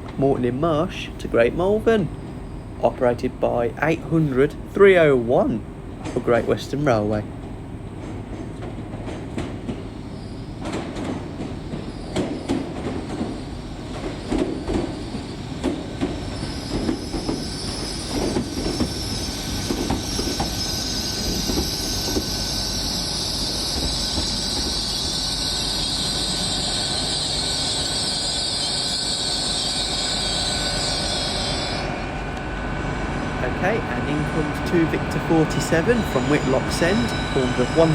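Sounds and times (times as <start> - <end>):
train wheels knocking over rail joints: 8.0 - 9.9, 10.5 - 25.9
high-pitched wheel squeal: 16.2 - 32.0, 35.3 - 37.9.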